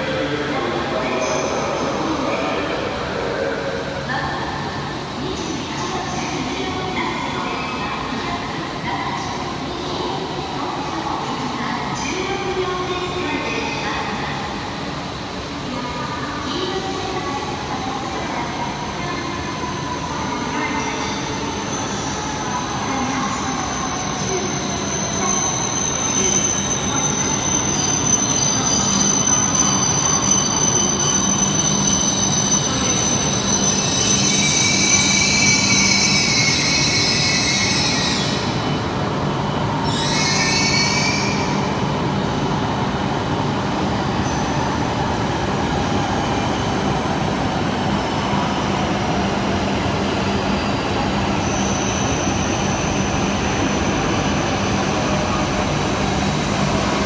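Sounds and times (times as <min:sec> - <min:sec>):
train drawing in: 0:00.0 - 0:57.0
wheels squealing on rails: 0:21.0 - 0:38.9, 0:39.5 - 0:41.6, 0:50.6 - 0:55.2.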